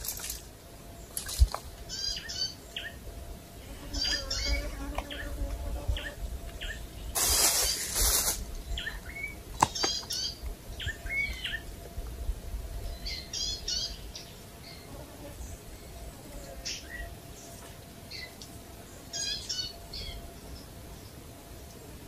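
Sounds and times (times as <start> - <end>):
birds chirping: 0.0 - 3.2, 3.8 - 11.8, 12.8 - 21.3
rustling noise: 7.1 - 8.6.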